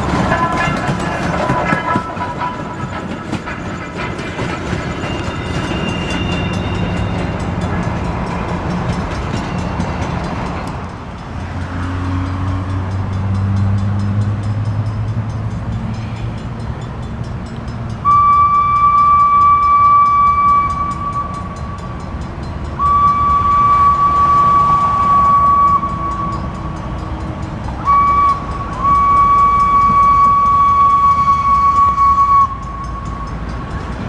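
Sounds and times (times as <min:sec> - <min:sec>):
train horn: 0:00.0 - 0:03.5, 0:18.0 - 0:22.0, 0:22.7 - 0:27.0, 0:27.7 - 0:33.4
train rumble: 0:00.0 - 0:34.0
train wheels clicking over rail joints: 0:00.0 - 0:34.0.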